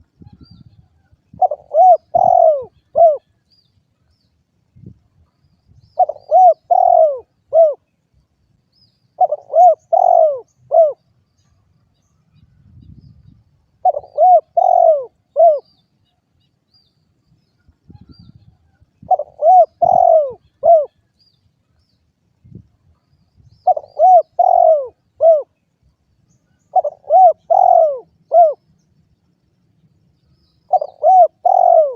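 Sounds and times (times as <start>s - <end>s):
dove cooing: 1.3s - 3.4s, 6.0s - 7.9s, 9.2s - 11.0s, 13.8s - 15.7s, 19.0s - 21.0s, 23.6s - 25.6s, 26.7s - 28.6s, 30.7s - 31.9s.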